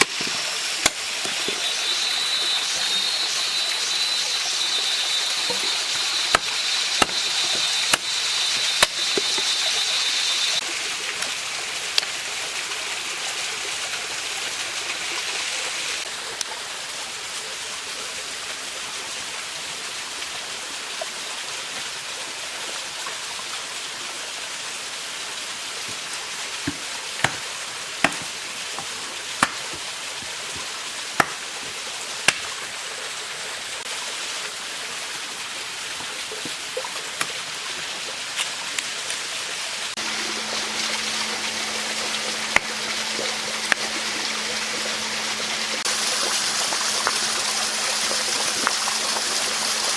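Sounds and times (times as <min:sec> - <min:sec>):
stream running: 0:00.0 - 0:49.9
sharp chopping knocks: 0:06.3 - 0:08.1, 0:26.7 - 0:28.4, 0:29.4 - 0:29.8, 0:31.2 - 0:31.4
high whine: 0:40.0 - 0:49.9.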